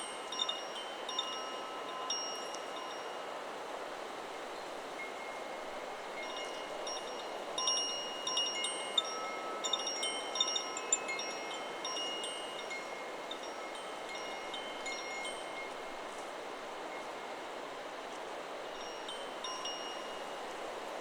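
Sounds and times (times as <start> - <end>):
wind chime ringing: 0.0 - 3.2.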